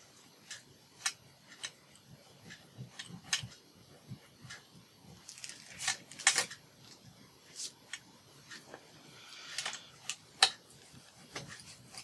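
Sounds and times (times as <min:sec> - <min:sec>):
paper rustling and crinkling: 0:05.2 - 0:08.8.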